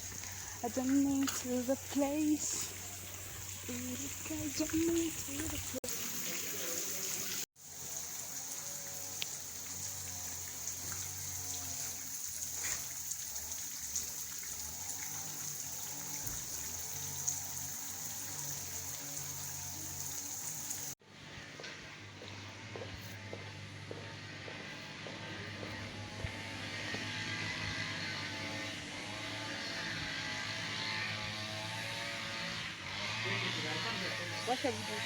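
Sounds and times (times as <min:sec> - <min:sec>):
water running with a hiss: 0:00.0 - 0:21.0.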